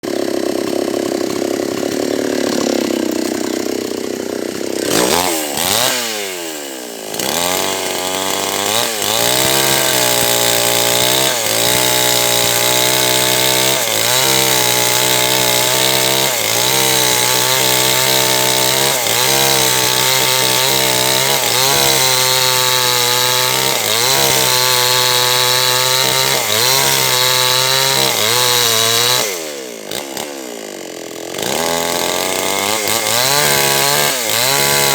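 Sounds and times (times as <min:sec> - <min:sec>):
chainsaw cutting log: 0:00.0 - 0:34.9.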